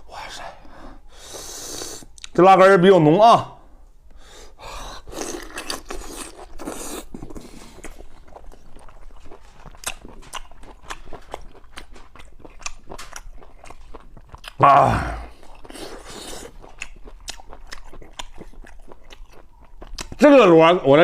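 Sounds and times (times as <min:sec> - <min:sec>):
man chewing: 0:04.1 - 0:20.2.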